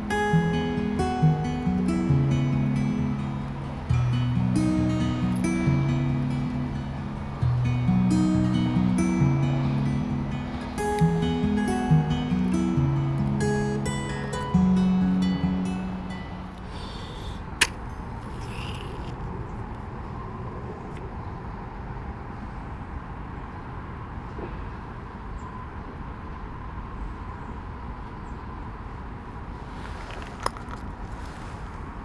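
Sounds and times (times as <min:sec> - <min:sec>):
faint high hum: 0:00.0 - 0:19.5
sharp click: 0:17.6 - 0:19.2.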